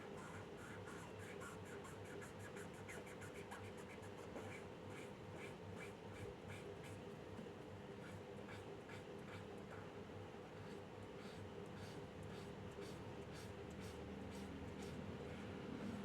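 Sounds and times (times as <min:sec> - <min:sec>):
pencil scratching on paper: 0:10.6 - 0:16.0.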